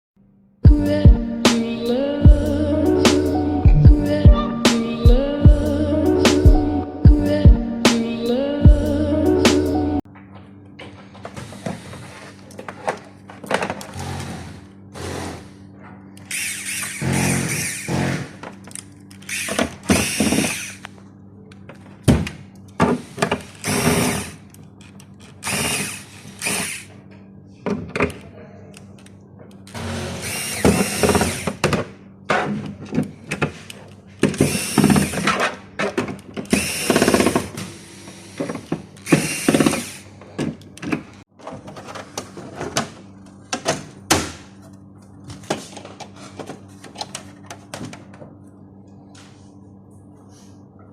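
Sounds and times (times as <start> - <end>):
steady low hum: 0.6 - 10.0
electric screwdriver running: 16.2 - 18.4, 19.2 - 20.8, 23.0 - 24.4, 25.4 - 26.9, 29.7 - 31.6, 34.4 - 35.3, 36.5 - 40.1.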